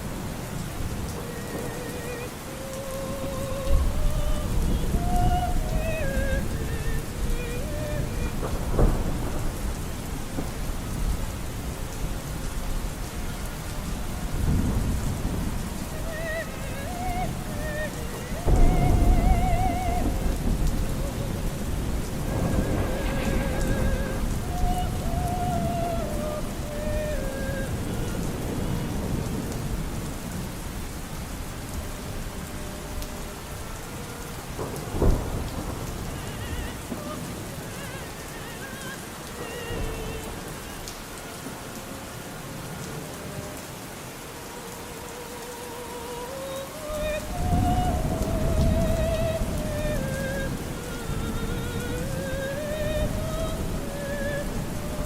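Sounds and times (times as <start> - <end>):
rumbling thunder: 0.0 - 41.0, 47.0 - 55.0
faint operatic singing: 0.0 - 55.0
steady rain: 0.0 - 55.0.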